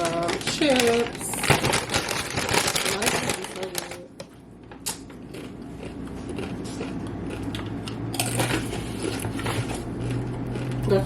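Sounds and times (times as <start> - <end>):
chip bag crinkling: 0.0 - 4.2.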